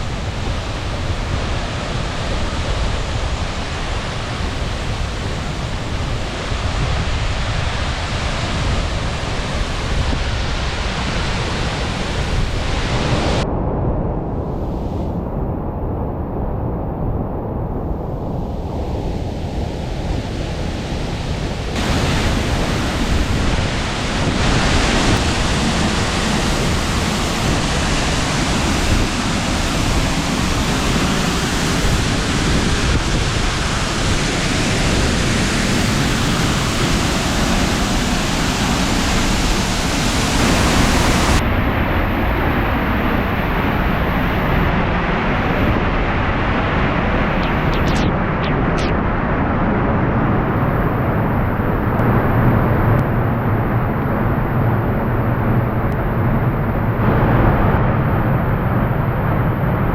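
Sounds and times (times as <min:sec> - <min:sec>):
waterfall rushing: 0:21.8 - 0:32.4.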